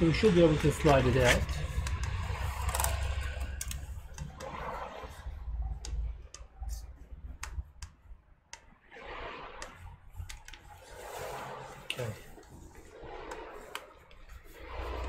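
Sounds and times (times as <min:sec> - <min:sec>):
plastic rubbing: 0:00.5 - 0:15.0
plastic parts clicking and tapping: 0:00.8 - 0:04.5.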